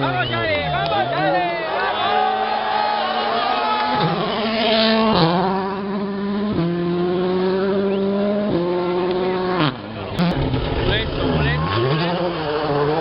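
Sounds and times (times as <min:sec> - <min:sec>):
rally car engine changing gear: 0:03.8 - 0:13.0.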